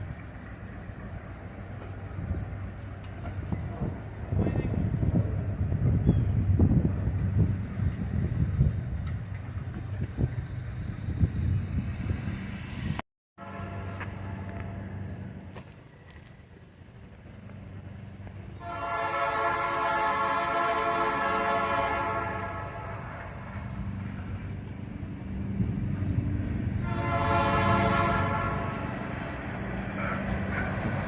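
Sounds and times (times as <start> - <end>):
diesel engine rumble: 0.0 - 19.1, 21.9 - 31.0
locomotive horn blasts: 13.4 - 14.5, 18.6 - 23.3, 26.8 - 29.0.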